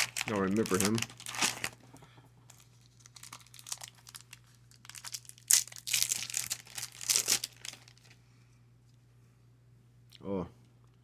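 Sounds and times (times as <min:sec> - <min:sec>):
card wrapper rustling: 0:00.0 - 0:08.2.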